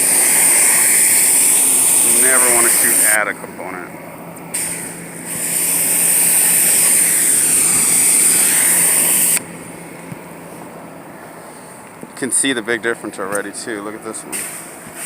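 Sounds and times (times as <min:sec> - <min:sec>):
pressure washer spraying water: 0:00.0 - 0:03.3, 0:04.5 - 0:09.4
washer engine humming: 0:00.0 - 0:15.0.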